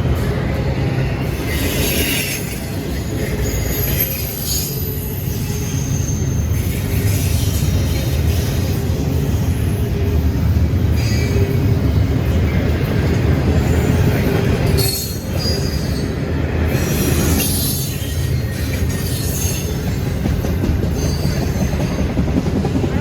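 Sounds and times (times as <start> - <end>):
freight train cars rumbling: 0.0 - 23.0
high wheel squeals: 1.5 - 9.8, 14.6 - 20.2.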